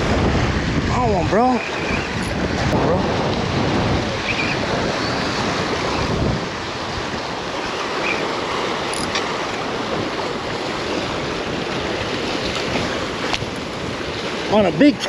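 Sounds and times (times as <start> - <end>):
choppy water lapping: 0.0 - 15.0
wind buffeting microphone: 0.0 - 15.0.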